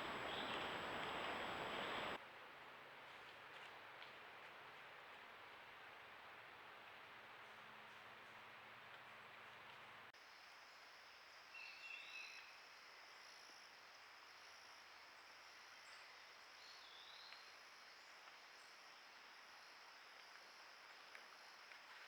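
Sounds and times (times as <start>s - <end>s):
background hiss: 0.0s - 2.2s.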